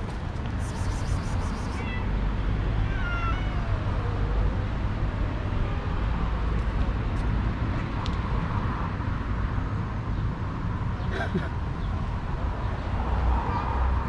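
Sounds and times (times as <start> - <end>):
city traffic rumble: 0.0 - 14.0
cat crying: 0.9 - 2.2, 2.8 - 4.4.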